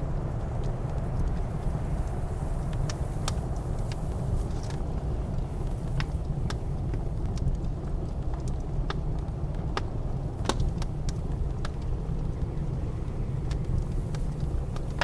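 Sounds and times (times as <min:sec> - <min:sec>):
blizzard wind rumble: 0:00.0 - 0:15.0
wood fire crackling and popping: 0:00.0 - 0:15.0.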